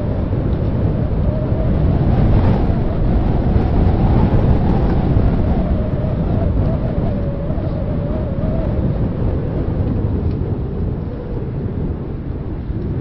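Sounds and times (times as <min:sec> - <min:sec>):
wind buffeting microphone: 0:00.0 - 0:13.0
faint wavering whistle: 0:01.2 - 0:09.6.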